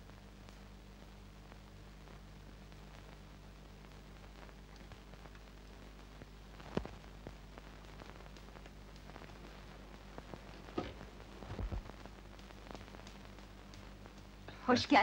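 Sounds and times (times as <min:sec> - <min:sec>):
steady low hum: 0:00.0 - 0:15.0
soft knocks and thumps: 0:10.7 - 0:11.9
faint clicks: 0:11.8 - 0:14.6.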